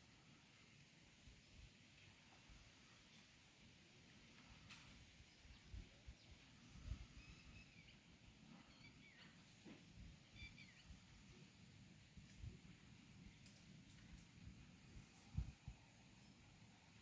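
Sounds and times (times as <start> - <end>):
bird chirps: 10.2 - 11.0.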